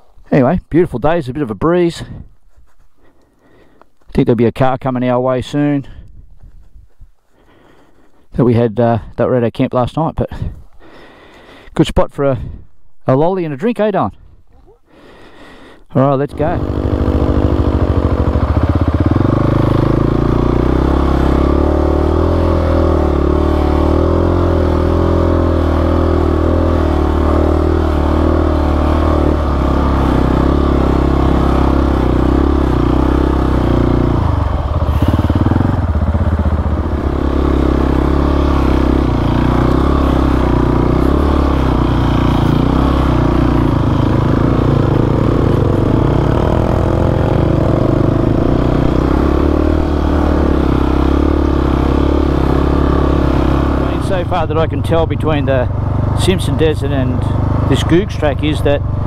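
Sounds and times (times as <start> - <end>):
motorcycle engine running: 16.2 - 59.0.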